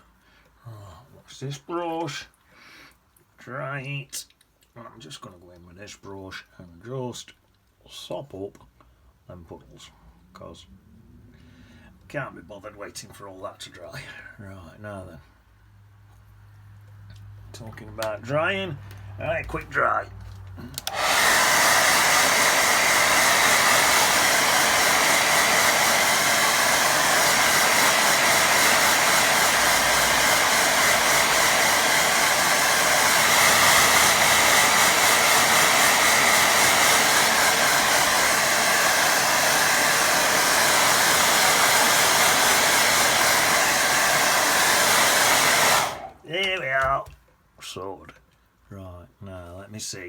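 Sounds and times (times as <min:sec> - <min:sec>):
hair dryer blowing: 0:20.7 - 0:46.3.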